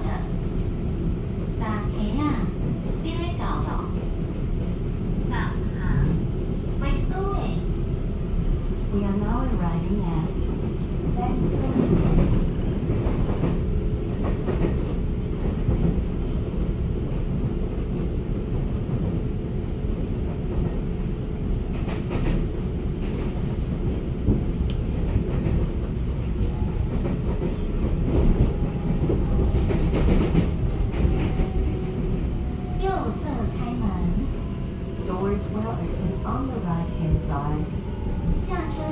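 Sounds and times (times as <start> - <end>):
train wheels rumbling on track: 0.0 - 38.9
rail clicks: 21.7 - 38.9.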